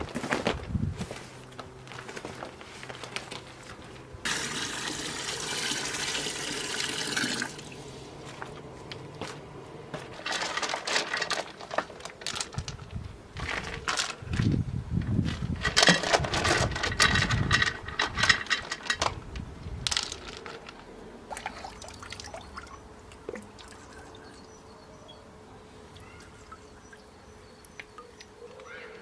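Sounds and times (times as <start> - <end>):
water pouring and splashing: 4.2 - 8.0, 21.3 - 24.2
water dripping: 21.3 - 24.4, 25.9 - 28.3.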